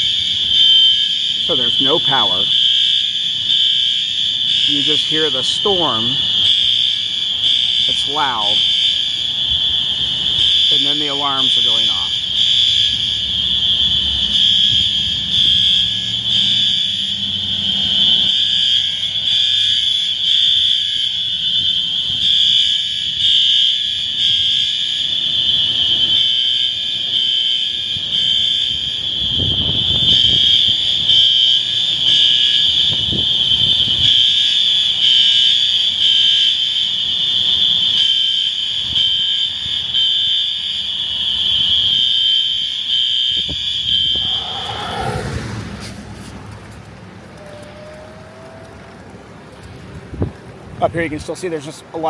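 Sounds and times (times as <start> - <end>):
high-pitched alarm tone: 0.0 - 48.8
low rumble: 44.1 - 47.4.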